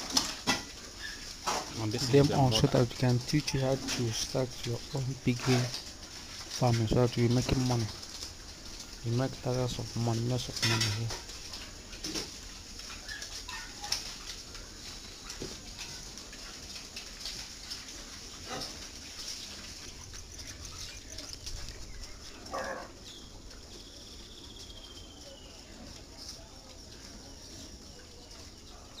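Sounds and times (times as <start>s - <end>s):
pigs grunting: 17.6s - 21.4s, 22.1s - 23.1s
pig calling loudly: 22.5s - 23.0s.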